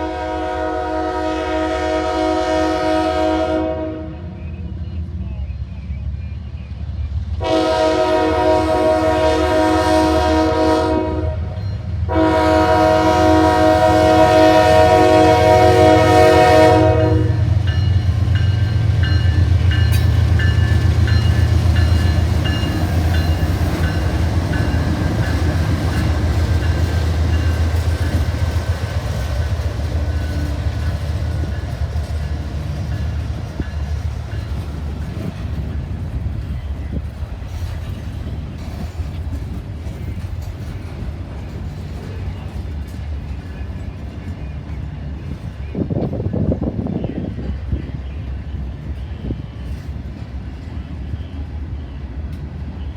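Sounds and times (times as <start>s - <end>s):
train horn chord: 0.0s - 4.4s, 7.4s - 19.2s
passing train running noise: 0.0s - 52.9s.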